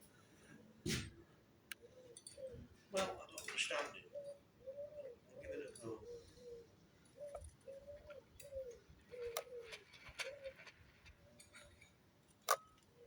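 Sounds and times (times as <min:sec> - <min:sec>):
pigeon cooing: 0:01.8 - 0:11.6.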